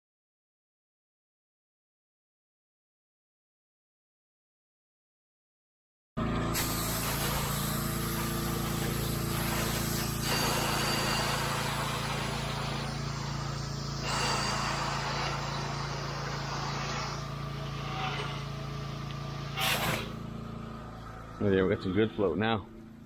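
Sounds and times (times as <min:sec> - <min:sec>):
pressure washer engine running: 0:06.2 - 0:23.0
water jet spraying hiss: 0:06.6 - 0:18.5, 0:19.4 - 0:20.2.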